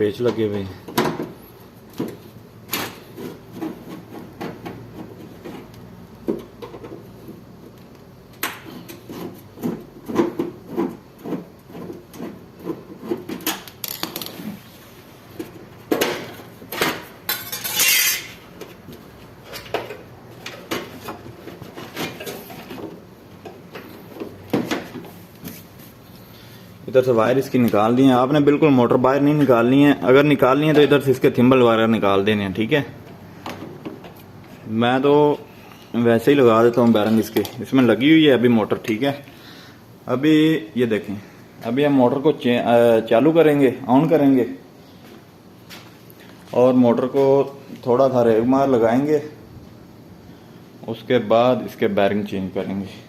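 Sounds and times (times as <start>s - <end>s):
metal scrape: 17.5s - 18.4s.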